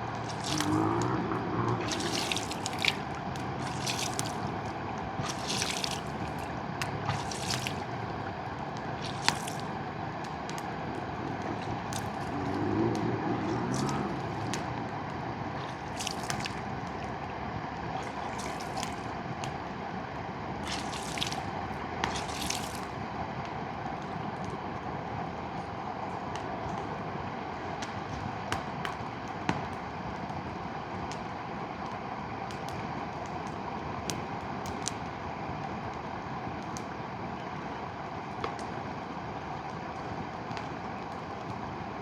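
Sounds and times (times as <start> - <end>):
water splashing gurgles: 0.0 - 30.4
river running: 0.0 - 30.8.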